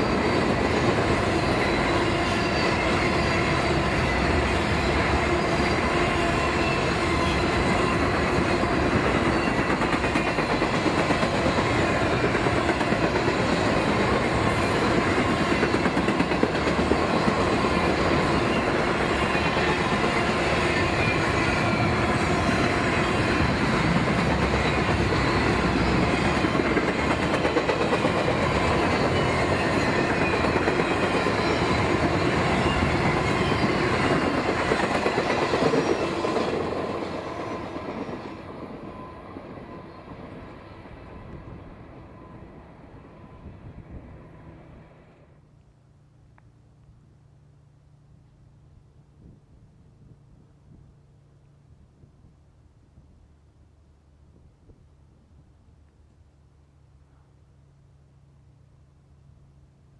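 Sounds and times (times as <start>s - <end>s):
train wheels rumbling on rail: 0.0s - 45.4s.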